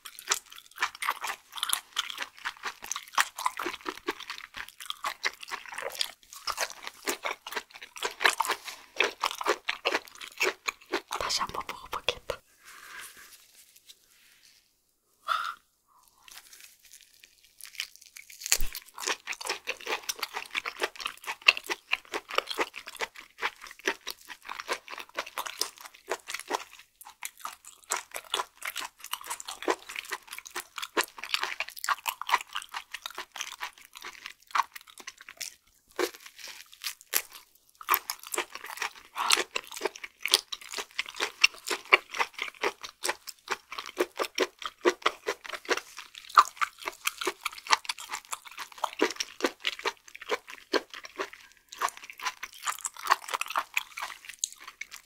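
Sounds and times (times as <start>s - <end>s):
chewing mouth clicks: 18.4s - 35.6s, 37.9s - 55.0s.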